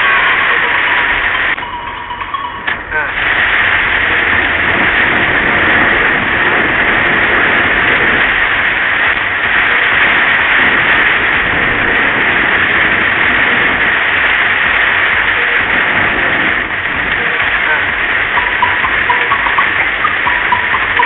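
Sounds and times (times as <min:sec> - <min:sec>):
heavy rain beating on a car: 0:00.0 - 0:21.0
tyres running through water: 0:00.0 - 0:21.0.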